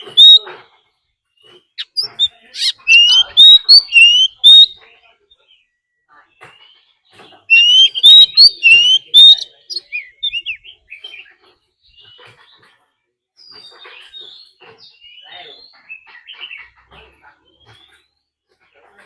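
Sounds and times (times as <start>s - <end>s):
bird whistling and chirping: 0.0s - 0.5s, 1.8s - 4.8s, 7.4s - 11.3s.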